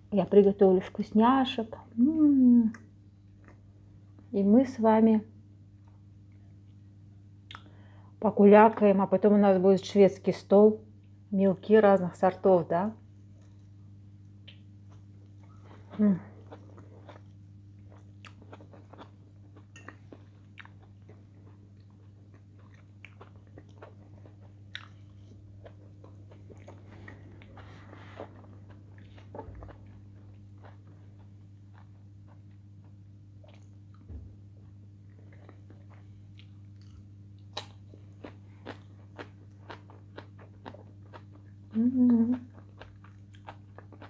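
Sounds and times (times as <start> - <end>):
steady low hum: 0.0 - 44.0
person chewing with wet clicks: 2.7 - 3.7, 7.5 - 7.7, 13.4 - 44.0.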